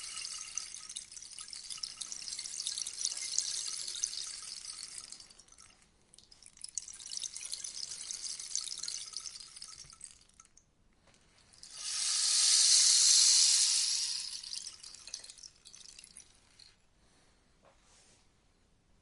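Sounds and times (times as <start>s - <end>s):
rainstick pebbles pattering: 11.2s - 16.7s.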